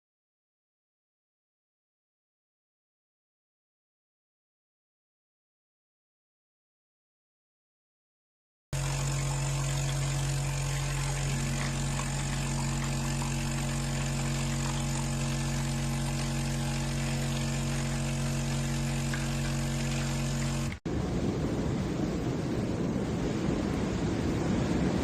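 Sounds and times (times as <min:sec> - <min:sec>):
machine humming: 0:08.8 - 0:20.8.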